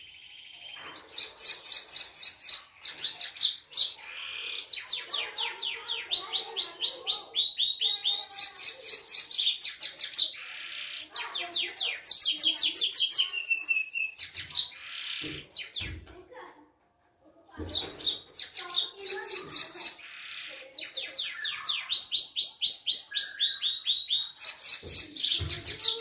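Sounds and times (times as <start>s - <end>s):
canary singing trills: 0.0s - 16.0s, 17.5s - 26.0s.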